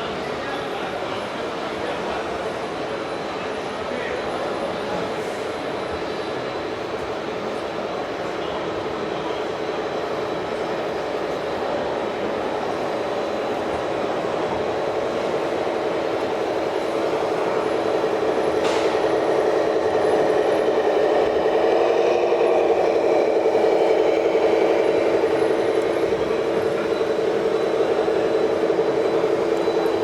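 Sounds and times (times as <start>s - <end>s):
model truck motor hum: 14.5s - 30.0s.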